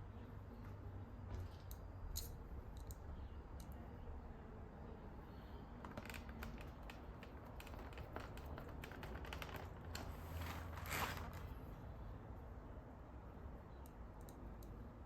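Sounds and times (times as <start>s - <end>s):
scraping rustle: 5.9s - 11.6s.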